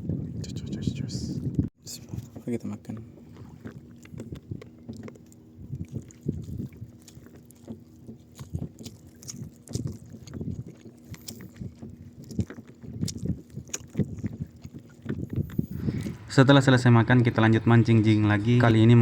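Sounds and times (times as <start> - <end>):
steady low hum: 0.0 - 19.0
water slapping a boat hull: 0.0 - 19.0.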